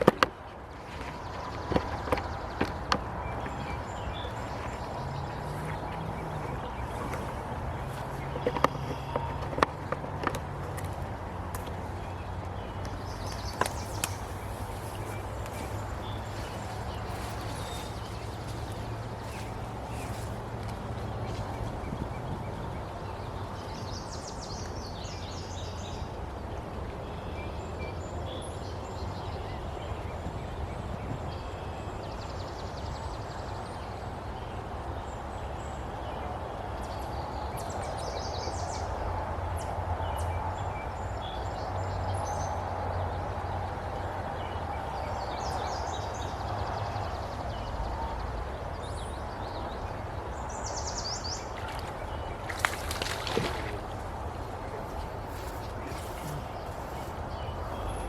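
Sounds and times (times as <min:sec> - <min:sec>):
birds chirping: 0:00.0 - 0:38.9, 0:43.6 - 0:58.0
river rushing: 0:50.0 - 0:57.9.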